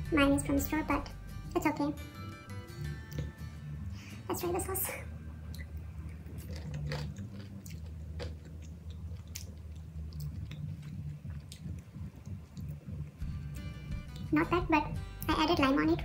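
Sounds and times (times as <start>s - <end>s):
person chewing with crunches: 5.5s - 13.2s.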